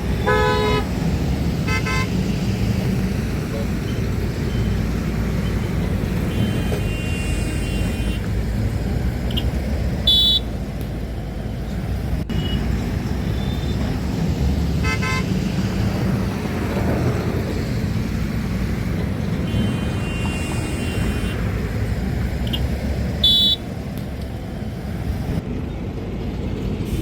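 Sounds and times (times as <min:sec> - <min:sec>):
vehicle horns honking: 0:00.0 - 0:01.0, 0:01.6 - 0:02.5, 0:06.1 - 0:08.3, 0:09.3 - 0:10.6, 0:12.3 - 0:14.0, 0:14.8 - 0:15.6, 0:19.3 - 0:23.7
road traffic rumble: 0:00.0 - 0:27.0.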